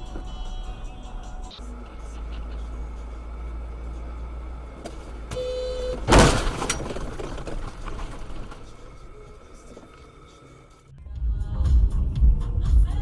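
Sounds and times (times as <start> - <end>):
road rumble inside vehicle: 0.0 - 13.0
collision crash: 4.7 - 9.9
car horn blast: 5.3 - 6.4.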